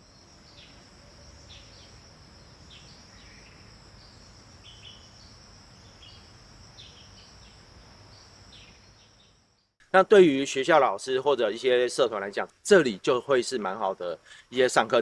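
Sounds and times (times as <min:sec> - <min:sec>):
bird chirps: 0:00.4 - 0:09.8.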